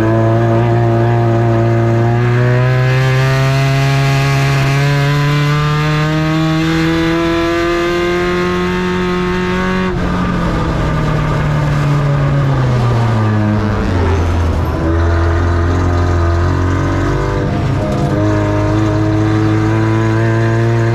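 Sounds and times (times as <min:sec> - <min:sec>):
truck engine revving hard: 0:00.0 - 0:20.9.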